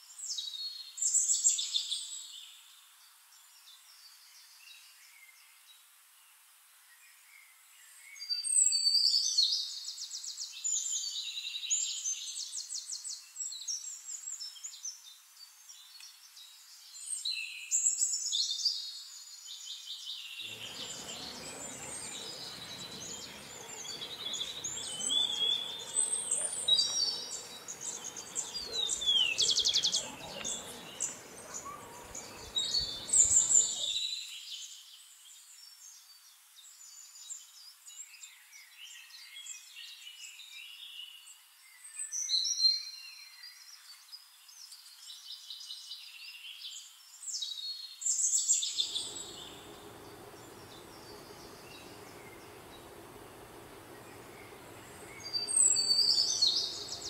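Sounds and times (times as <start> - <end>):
soft outdoor hiss: 19.1 - 38.0, 48.2 - 57.0
birds chirping and trilling: 20.4 - 34.0, 48.7 - 57.0.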